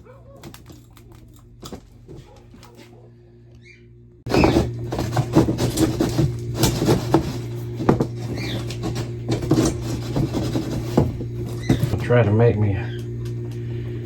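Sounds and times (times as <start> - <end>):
hands working with wire and tools: 0.0 - 2.9, 4.3 - 12.0
steady low hum: 0.0 - 14.0.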